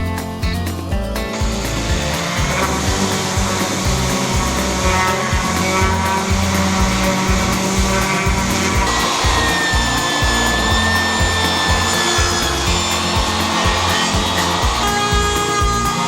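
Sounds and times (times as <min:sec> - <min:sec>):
background music with beat: 0:00.0 - 0:16.0
power tool working wood: 0:01.3 - 0:16.0.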